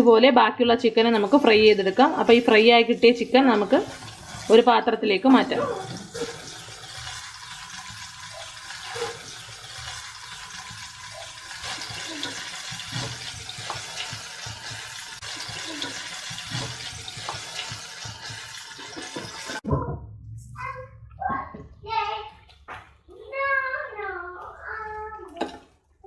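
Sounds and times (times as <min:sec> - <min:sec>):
chicken deep-frying in hot oil: 0:00.9 - 0:19.6.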